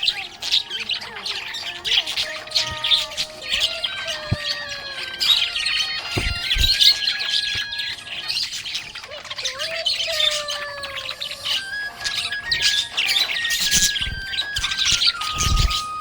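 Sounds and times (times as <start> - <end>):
budgerigars chirping: 0.0 - 16.0
low thumps: 6.0 - 7.0.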